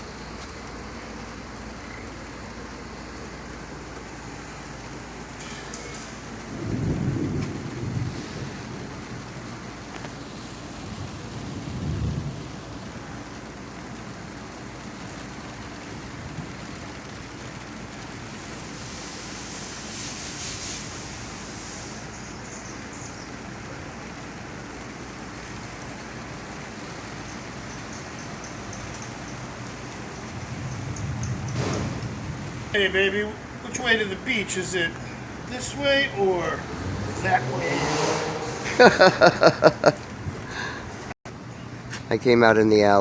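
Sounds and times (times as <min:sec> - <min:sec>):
steady rain falling: 0:00.0 - 0:42.2
low rumble of thunder: 0:06.2 - 0:13.8, 0:29.6 - 0:33.6.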